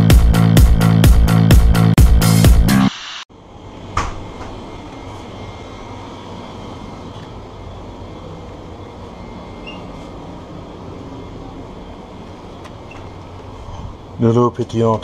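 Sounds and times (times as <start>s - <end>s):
drink coolers and air conditioning hum: 3.3s - 15.0s.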